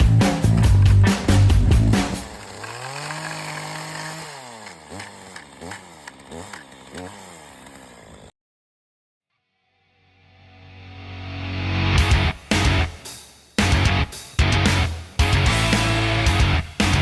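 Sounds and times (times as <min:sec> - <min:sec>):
chainsaw engine revving: 0:00.0 - 0:08.3
music with heavy beat: 0:12.0 - 0:17.0.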